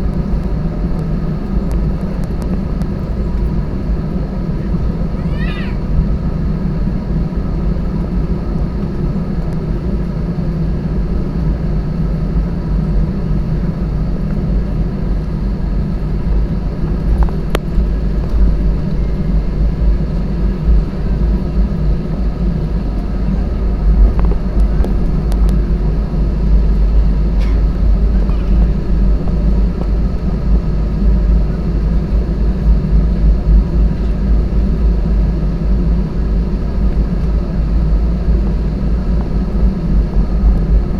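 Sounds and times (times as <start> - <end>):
faint steady hum: 0.0 - 40.9
jet engine rumble in cabin: 0.0 - 40.9.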